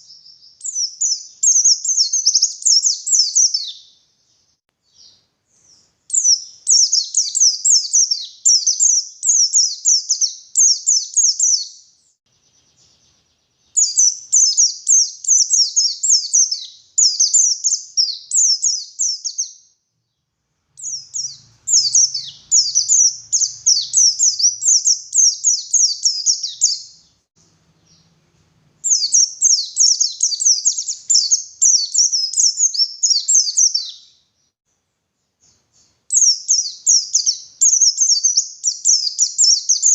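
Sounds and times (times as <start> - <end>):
bird high chirping song: 0.0 - 28.2, 28.8 - 34.6, 35.2 - 39.9.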